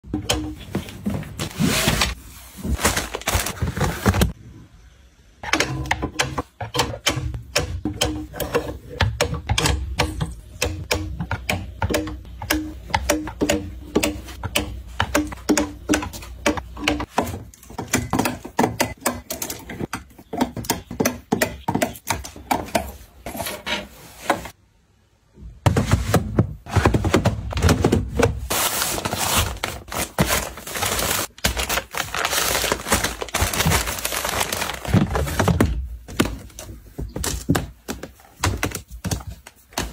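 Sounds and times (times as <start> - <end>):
objects clattering: 25.6 - 39.9.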